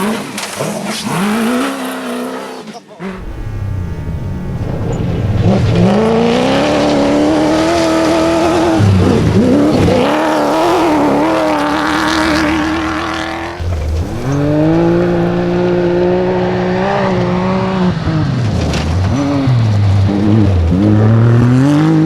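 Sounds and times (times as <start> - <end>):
second engine rising: 3.0 - 17.8
engine at full throttle: 3.0 - 22.0.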